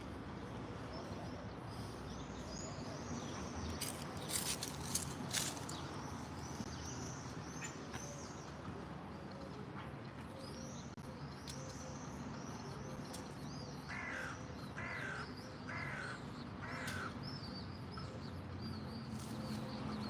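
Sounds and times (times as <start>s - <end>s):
crow cawing: 13.9s - 17.2s.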